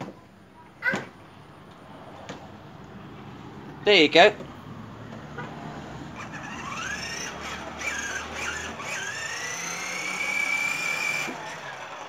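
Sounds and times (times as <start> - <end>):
toy motorbike electric motor whine: 6.2 - 12.0.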